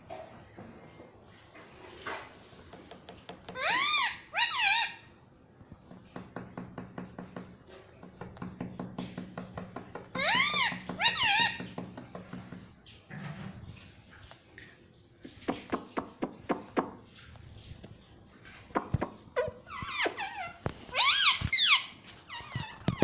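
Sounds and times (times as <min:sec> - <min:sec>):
parrot calling: 0:03.4 - 0:05.2, 0:10.0 - 0:11.8, 0:19.4 - 0:22.9.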